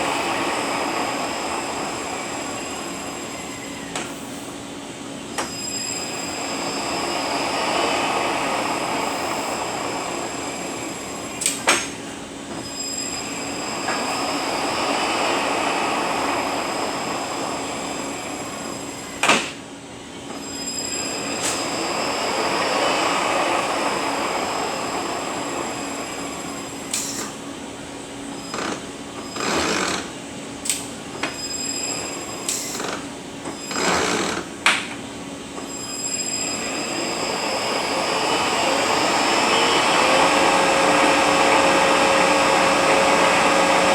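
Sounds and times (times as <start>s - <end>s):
transmission whine: 0.0s - 43.9s
rushing noise: 36.0s - 43.9s.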